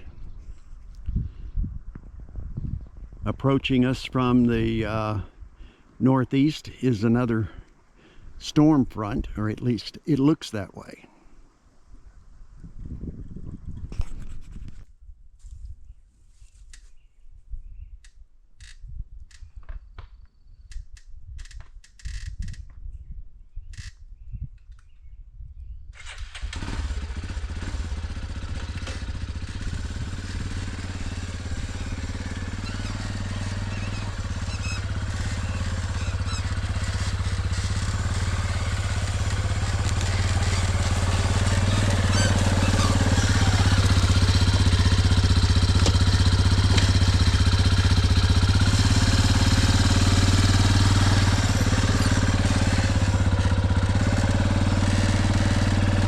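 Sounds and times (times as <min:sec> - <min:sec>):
vehicle engine running: 0:26.6 - 0:56.0.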